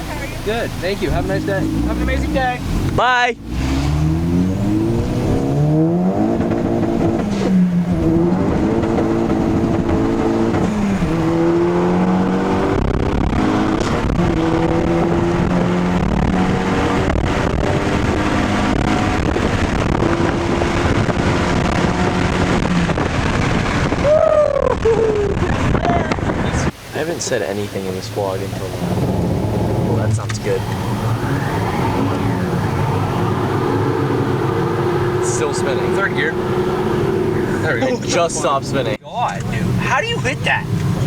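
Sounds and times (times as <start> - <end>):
car engine accelerating: 0.0 - 41.0.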